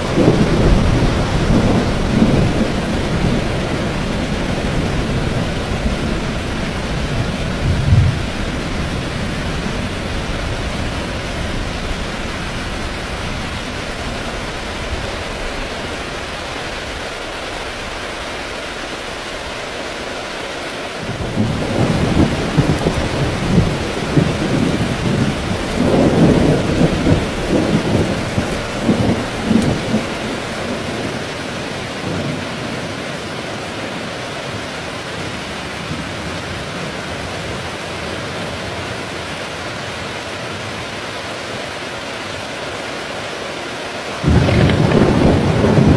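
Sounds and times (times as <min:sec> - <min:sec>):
rolling thunder rumble: 0:00.0 - 0:16.0, 0:21.1 - 0:32.9, 0:44.2 - 0:45.9
heavy rain falling: 0:00.0 - 0:45.9.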